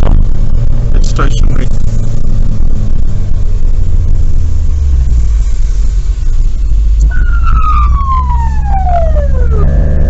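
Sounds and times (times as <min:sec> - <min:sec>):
car driving rumble: 0:00.0 - 0:10.0
siren winding down: 0:07.0 - 0:10.0.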